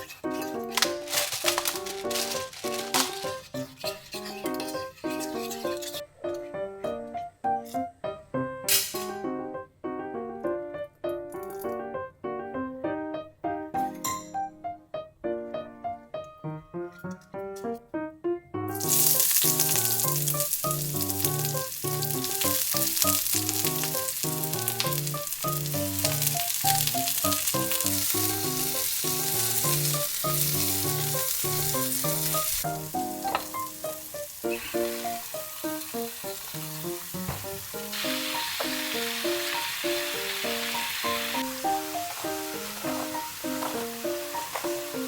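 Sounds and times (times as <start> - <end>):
food sizzling in a frying pan: 0.0 - 6.0, 18.7 - 45.0
background music: 0.0 - 45.0.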